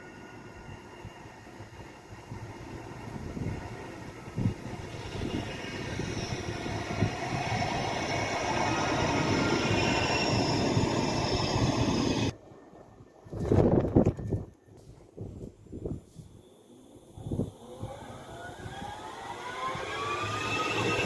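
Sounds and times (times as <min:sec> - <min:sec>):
tram high whine: 0:00.0 - 0:12.4, 0:17.0 - 0:21.0
tram wheels rumbling on rails: 0:00.1 - 0:12.4.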